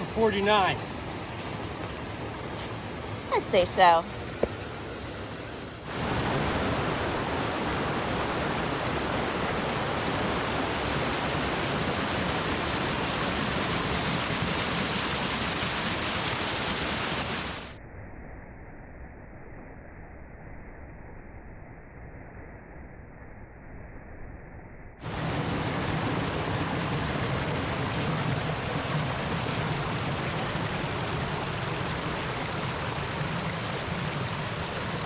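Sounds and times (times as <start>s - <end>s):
waterfall rushing: 0.0s - 17.6s, 25.1s - 35.0s.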